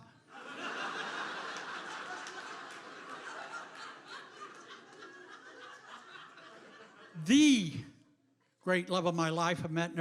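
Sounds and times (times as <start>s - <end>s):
audience laughing: 0.2s - 7.3s.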